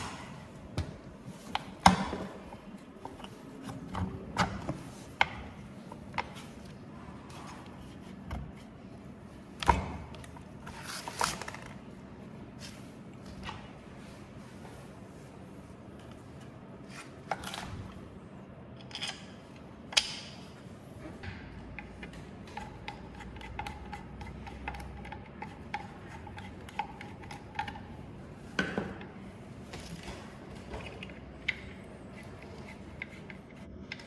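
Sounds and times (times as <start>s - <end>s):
clicks and knocks of tools: 18.8s - 20.4s.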